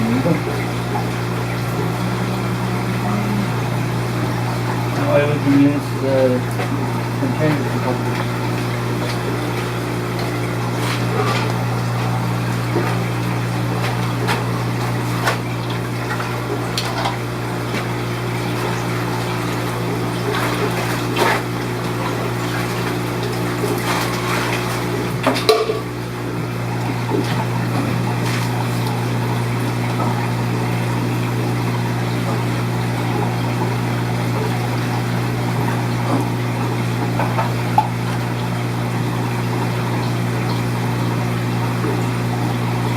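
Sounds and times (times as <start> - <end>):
aquarium pumps humming: 0.0 - 42.9
small water splashes: 0.0 - 42.9
containers clinking: 23.8 - 26.0.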